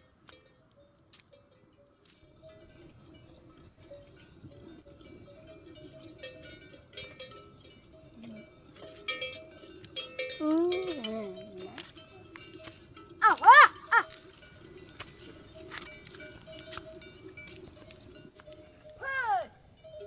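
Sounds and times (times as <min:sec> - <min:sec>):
livestock bells clinking: 0:00.0 - 0:20.0.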